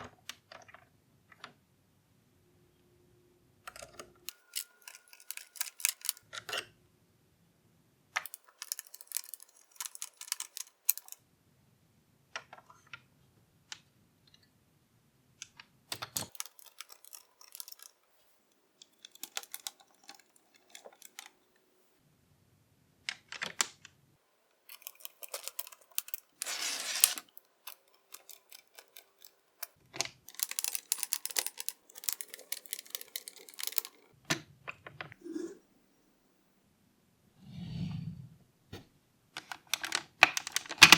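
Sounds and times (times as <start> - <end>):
plastic parts clicking and rattling: 3.7 - 6.7, 8.2 - 11.2, 15.4 - 21.5, 24.5 - 34.2, 39.4 - 40.9.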